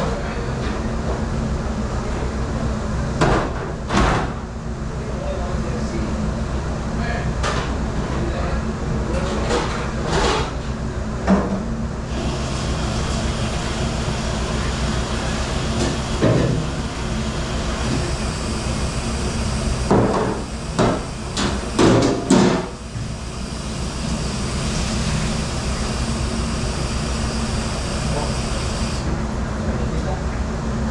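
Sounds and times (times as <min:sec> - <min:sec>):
machinery hum: 0:12.0 - 0:30.9.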